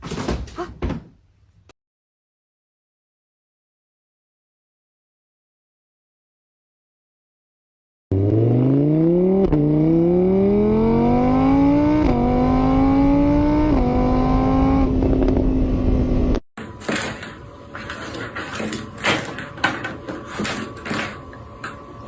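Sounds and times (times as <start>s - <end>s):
car engine accelerating: 8.1s - 16.4s.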